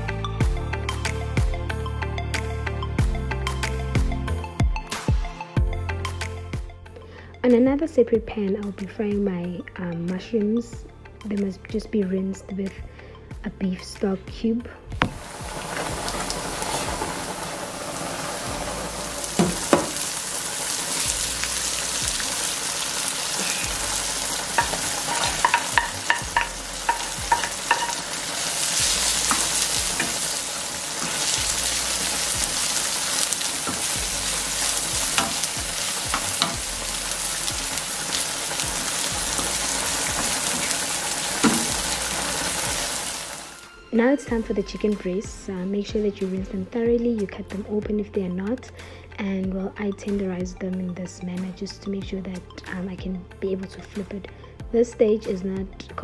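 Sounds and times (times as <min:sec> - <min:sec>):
wooden spoon knocking on pan: 0:15.0 - 0:15.3, 0:19.4 - 0:20.0, 0:24.6 - 0:28.2, 0:41.4 - 0:41.9
vegetables sizzling in a frying pan: 0:15.0 - 0:43.6.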